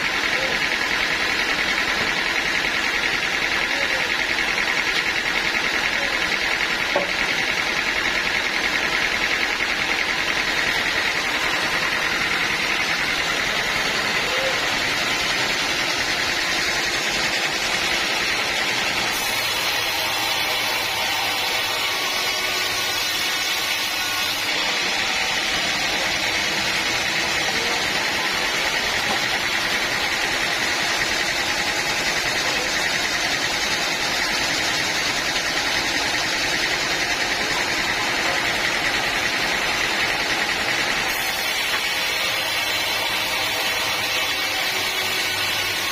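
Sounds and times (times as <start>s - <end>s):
sawmill machinery droning: 0.0s - 45.9s.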